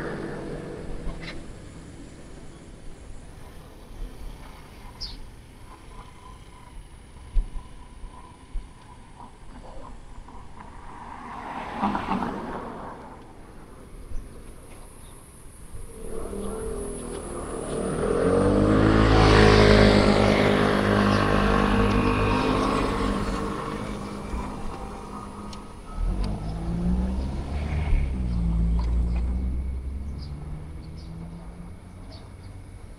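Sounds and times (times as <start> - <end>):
vehicle passing by: 0.0 - 3.0, 10.3 - 14.6, 15.7 - 32.9
vehicle engine approaching: 0.0 - 32.9.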